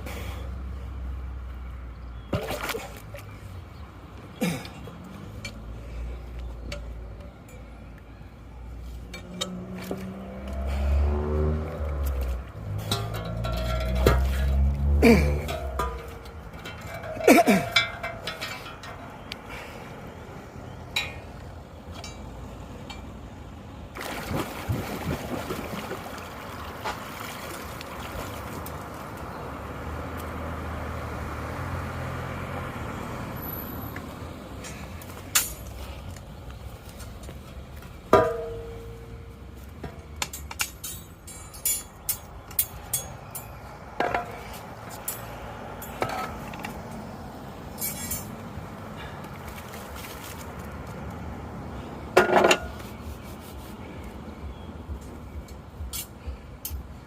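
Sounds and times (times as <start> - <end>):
metal tool scraping a drain grate: 12.7 - 19.0, 47.8 - 48.3
water rushing into a drain: 24.0 - 28.8
sharp ringing knocks: 38.2 - 39.2.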